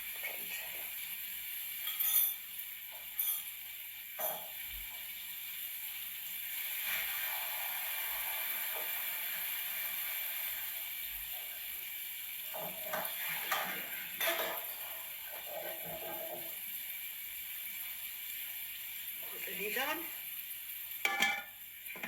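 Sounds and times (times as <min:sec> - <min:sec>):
cookware clinking and knocking: 0:21.0 - 0:22.0.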